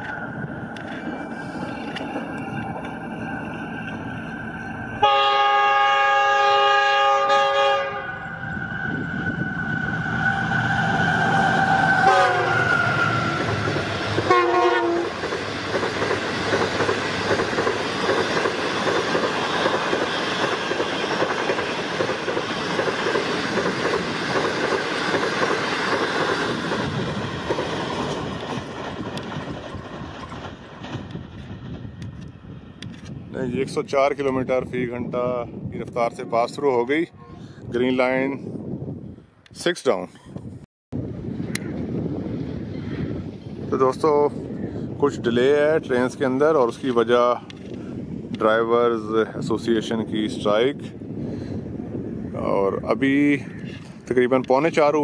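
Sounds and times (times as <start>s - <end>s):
train wheel clatter and rush: 0.0s - 5.6s, 7.6s - 36.7s, 41.0s - 55.0s
locomotive horn blast: 5.0s - 8.3s, 11.8s - 12.7s, 14.2s - 15.2s.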